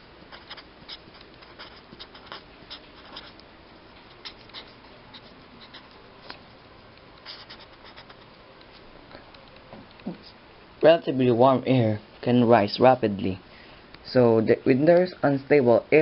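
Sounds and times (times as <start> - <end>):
pen scratching on surface: 0.3 - 3.4, 4.0 - 6.0, 7.2 - 8.3.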